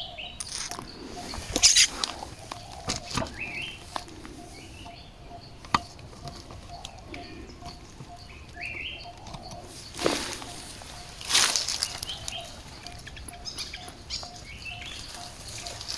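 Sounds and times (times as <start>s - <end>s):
birds calling: 0.0s - 15.9s
rustling: 9.6s - 13.0s.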